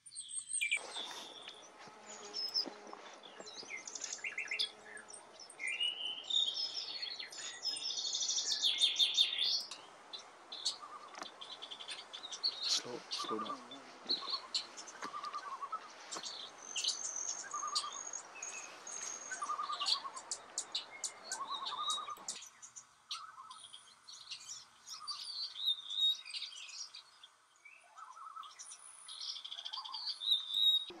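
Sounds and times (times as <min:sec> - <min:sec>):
songbirds chirping: 0:00.0 - 0:31.0
buzzy bird trills: 0:00.6 - 0:23.6.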